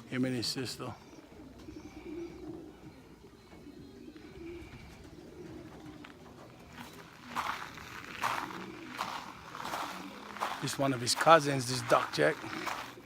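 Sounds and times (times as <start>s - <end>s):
pigeons cooing: 0.0s - 13.0s
wings rustling: 5.4s - 13.0s.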